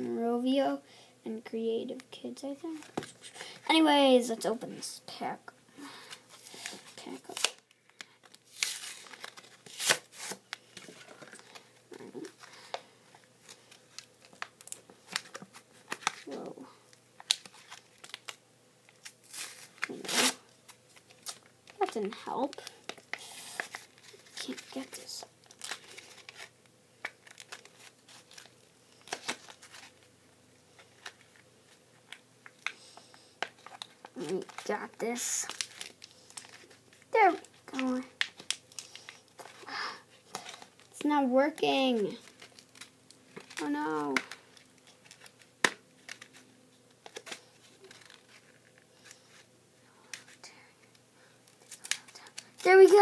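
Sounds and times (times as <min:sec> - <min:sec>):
toy packaging crinkling: 0:19.0 - 0:30.1, 0:33.4 - 0:39.7, 0:47.0 - 0:49.4.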